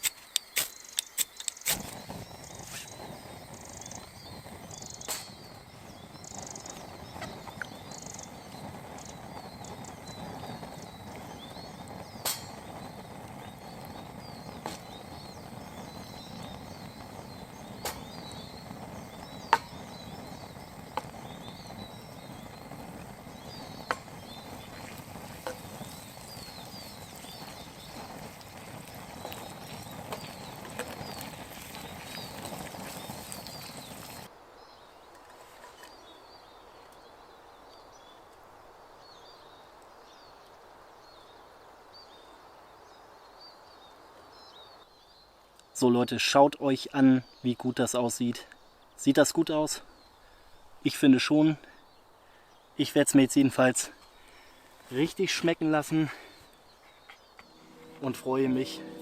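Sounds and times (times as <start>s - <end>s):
birds chirping: 0.0s - 35.1s, 43.5s - 59.0s
food sizzling in a pan: 1.7s - 34.3s, 57.5s - 59.0s.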